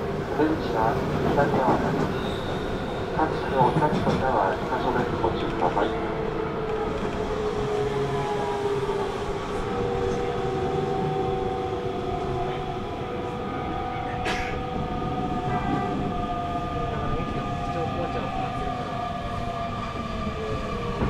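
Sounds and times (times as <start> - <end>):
steady train whine: 0.0 - 21.0
train wheels rumbling on track: 0.0 - 21.0.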